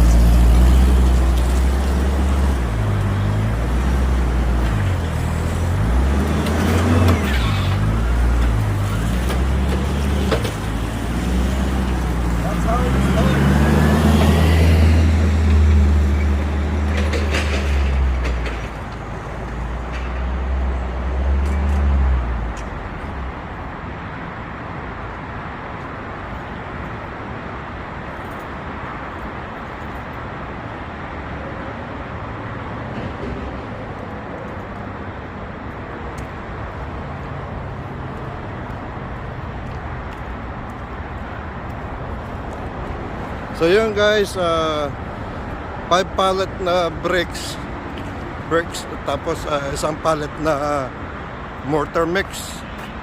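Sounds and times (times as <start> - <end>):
heavy vehicle engine running: 0.0 - 21.2
low rumble of traffic: 0.0 - 53.0.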